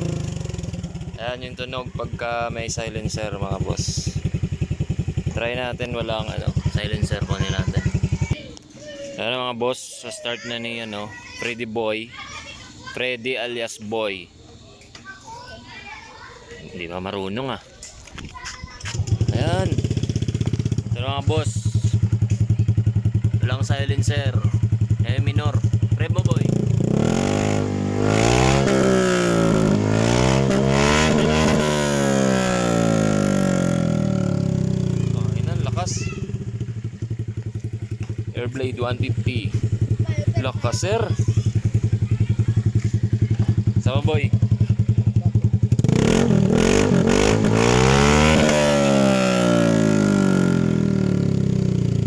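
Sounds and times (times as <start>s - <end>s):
scooter engine revving: 0.0s - 8.4s, 18.8s - 21.1s, 21.7s - 52.0s.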